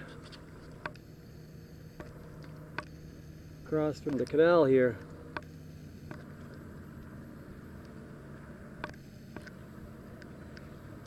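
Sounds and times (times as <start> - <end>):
water and wind rumble: 3.6 - 11.0.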